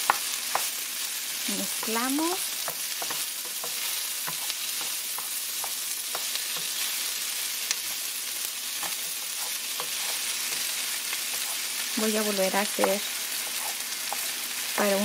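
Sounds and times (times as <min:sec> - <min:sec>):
food sizzling in oil: 0:00.0 - 0:15.0
wooden spoon scraping pan: 0:08.8 - 0:10.7, 0:11.3 - 0:11.7, 0:12.8 - 0:14.3.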